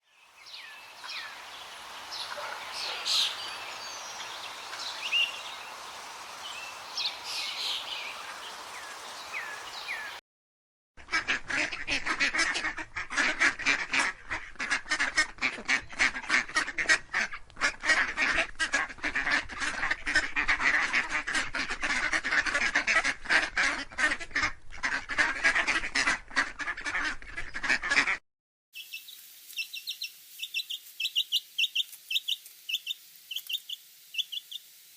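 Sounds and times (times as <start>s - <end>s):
bird chirps: 0.0s - 10.2s, 28.8s - 34.7s
background hiss: 0.1s - 10.2s, 28.8s - 34.9s
ducks quacking: 0.5s - 10.2s, 11.0s - 28.2s.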